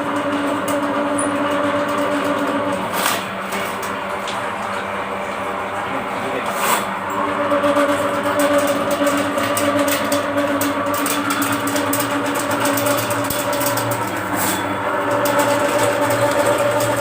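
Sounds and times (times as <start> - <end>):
drain-cleaning machine motor hum: 0.0 - 17.0
rapid rattle of spinning cable: 7.6 - 17.0.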